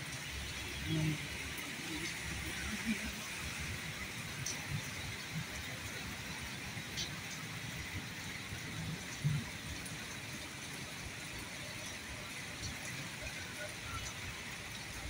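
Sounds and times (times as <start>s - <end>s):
steady rain hiss: 0.0s - 15.0s
drip ticks: 4.3s - 10.4s.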